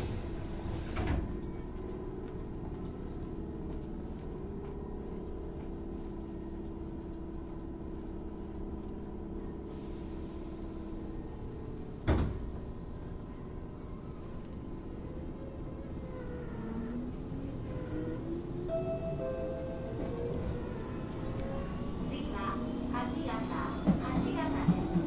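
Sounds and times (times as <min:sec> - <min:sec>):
train car rumble: 0:00.0 - 0:25.0.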